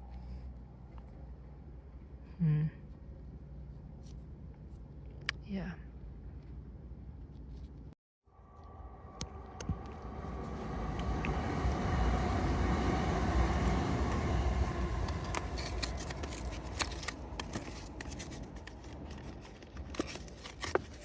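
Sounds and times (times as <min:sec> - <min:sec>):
passing vehicle rumble: 0:08.3 - 0:20.5.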